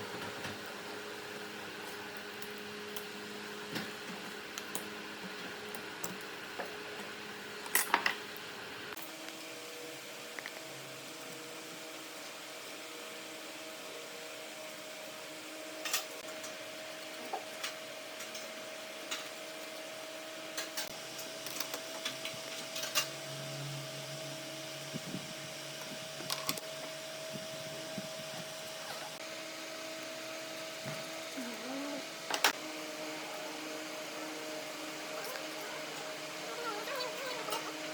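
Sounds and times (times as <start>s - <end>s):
workshop machine motor humming: 16.2s - 37.9s.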